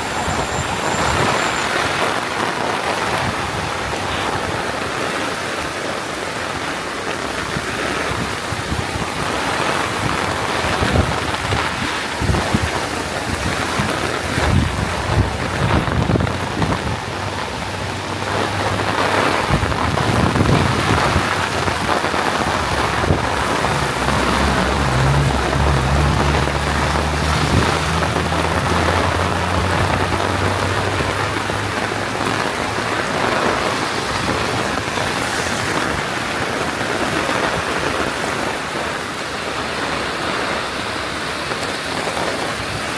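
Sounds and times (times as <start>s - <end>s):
heavy rain falling: 0.0s - 42.9s
low steady drone: 15.0s - 32.4s.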